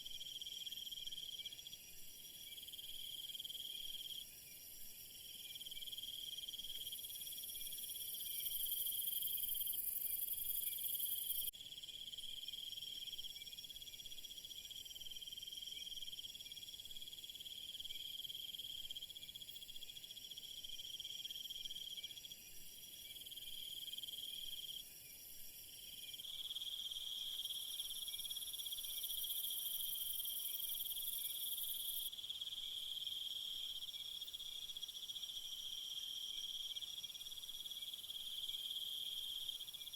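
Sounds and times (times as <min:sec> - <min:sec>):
crickets trilling: 0:26.0 - 0:39.9.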